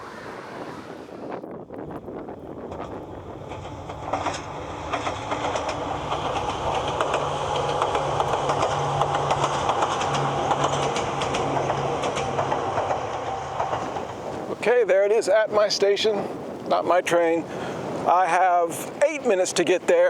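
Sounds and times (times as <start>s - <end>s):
electric train motor hum: 2.0s - 14.5s
wheels clicking over rail joints: 2.5s - 14.7s.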